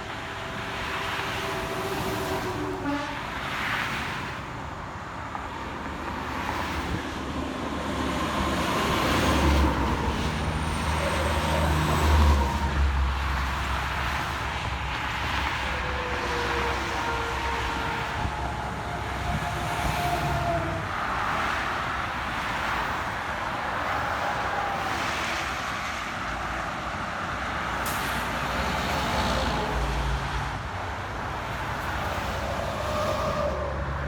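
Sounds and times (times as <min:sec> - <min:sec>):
heavy vehicle engine rumble: 0:00.0 - 0:25.0
road traffic passing: 0:00.0 - 0:34.0.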